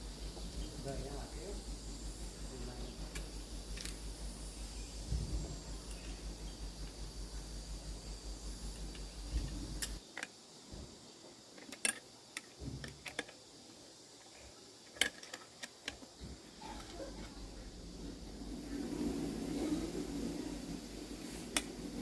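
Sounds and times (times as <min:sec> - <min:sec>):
low pulsing hum: 0:00.0 - 0:10.0, 0:16.2 - 0:22.0.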